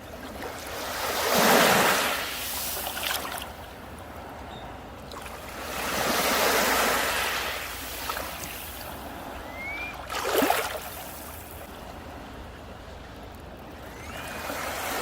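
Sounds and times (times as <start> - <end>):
waves washing on beach: 0.0 - 3.6, 5.0 - 15.0
rising whistle: 9.4 - 10.1, 13.8 - 14.8
sharp water splash: 9.6 - 11.2.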